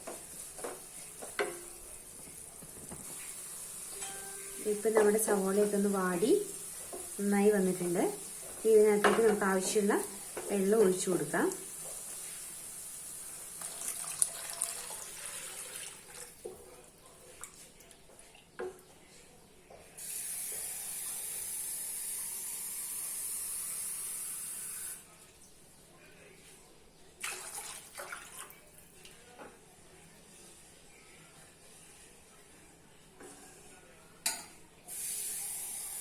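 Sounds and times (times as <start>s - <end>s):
vegetables sizzling in a pan: 0.0s - 16.7s, 20.0s - 25.1s, 34.2s - 36.0s
water running: 0.0s - 18.5s, 27.2s - 29.4s.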